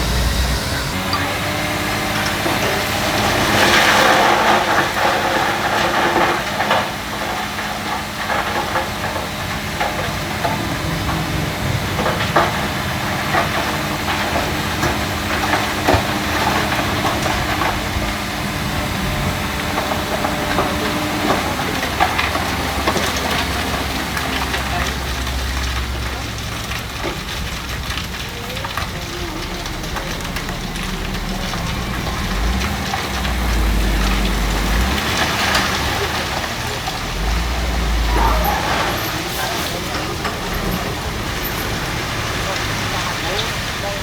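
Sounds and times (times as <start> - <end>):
loud rushing noise: 0.0 - 4.0
diesel engine running: 0.0 - 44.0.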